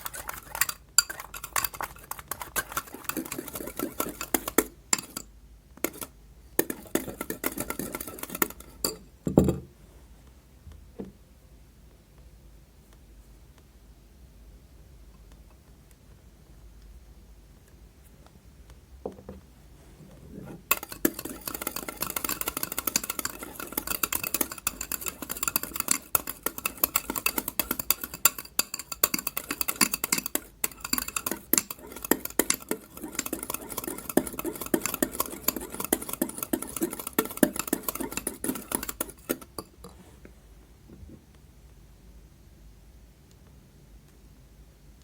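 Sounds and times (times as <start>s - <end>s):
slime being stirred in bowl: 0.0s - 9.0s, 20.2s - 40.3s.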